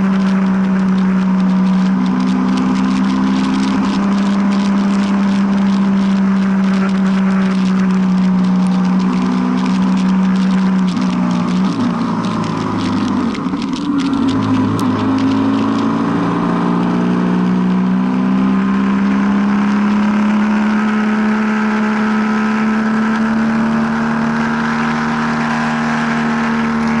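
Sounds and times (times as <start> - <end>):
raindrop ticks: 0.0 - 18.0
vehicle engine running: 0.0 - 27.0.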